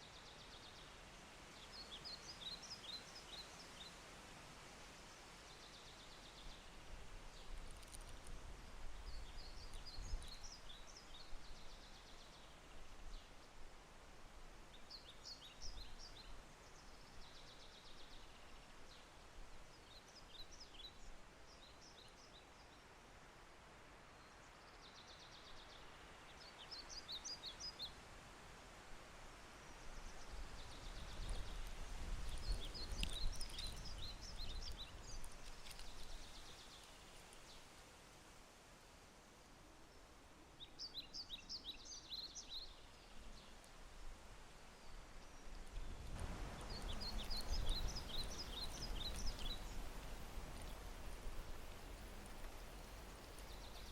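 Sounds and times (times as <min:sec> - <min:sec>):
gentle rain falling: 0:00.0 - 0:53.9
songbird chirping: 0:29.6 - 0:37.9, 0:39.8 - 0:53.9.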